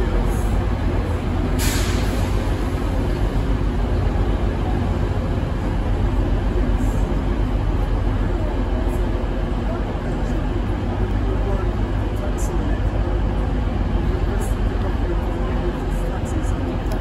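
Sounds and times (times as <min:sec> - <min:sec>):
train running noise: 0:00.0 - 0:17.0
hiss of air: 0:01.5 - 0:02.6.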